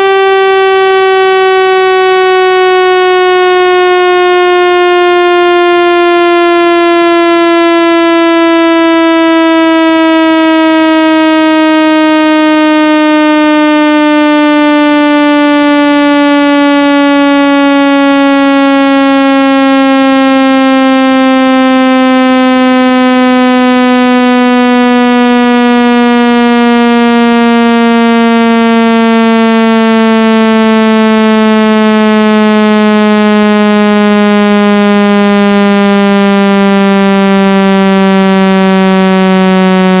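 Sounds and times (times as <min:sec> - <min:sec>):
buzzy tone sliding down: 0:00.0 - 0:05.2.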